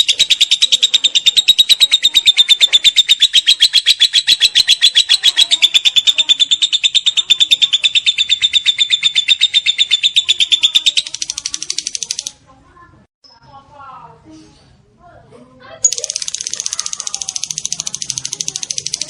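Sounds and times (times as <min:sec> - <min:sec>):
lovebird chattering: 0:00.0 - 0:12.4, 0:15.8 - 0:19.0.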